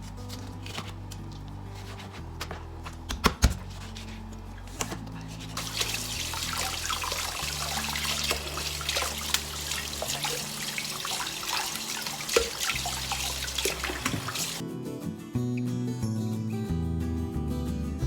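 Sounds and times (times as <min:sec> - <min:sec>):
tap water splashing into sink: 0:05.6 - 0:14.6.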